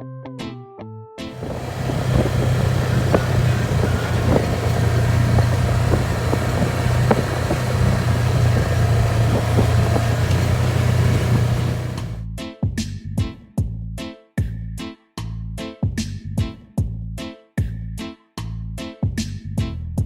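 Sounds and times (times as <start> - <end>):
road and wind noise: 1.3 - 12.2
vehicle engine hum: 1.3 - 12.2
light knocks and rattles: 1.4 - 12.2.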